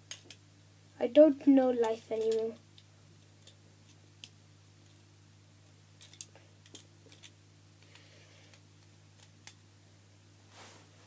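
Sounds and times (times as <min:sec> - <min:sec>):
steady low hum: 0:00.0 - 0:11.0
plastic toys clicking and tapping: 0:01.8 - 0:03.6, 0:06.0 - 0:08.6.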